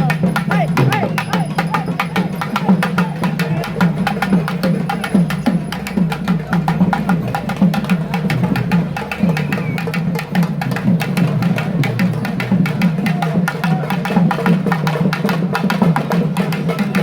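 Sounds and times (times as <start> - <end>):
drums in fast rhythm: 0.0 - 17.0
voices: 0.0 - 17.0.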